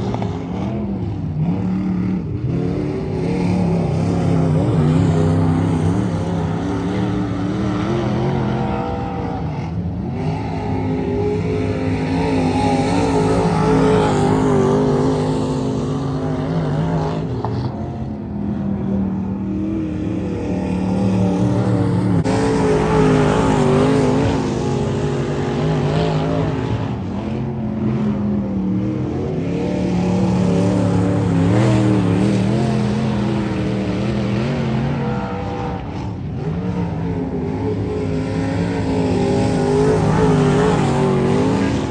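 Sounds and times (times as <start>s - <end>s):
race car engines: 0.0s - 41.9s.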